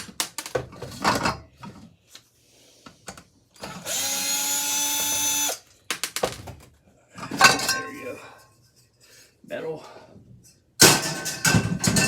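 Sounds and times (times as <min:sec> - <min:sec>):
power tool motor whining: 0:03.7 - 0:05.6.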